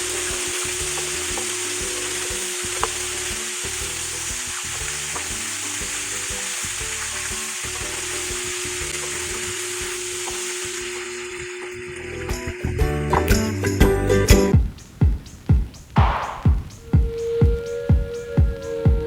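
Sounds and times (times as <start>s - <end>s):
food sizzling in hot oil: 0.0s - 12.8s.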